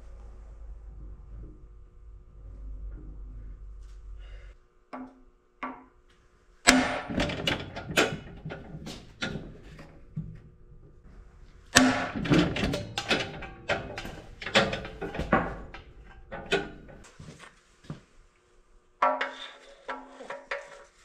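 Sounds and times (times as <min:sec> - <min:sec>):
hammer striking metal: 0:06.7 - 0:08.4, 0:11.8 - 0:17.0.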